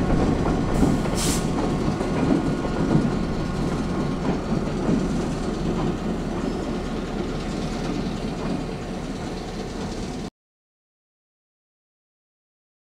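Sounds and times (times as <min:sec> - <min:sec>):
train cars rumbling on rails: 0:00.0 - 0:10.3.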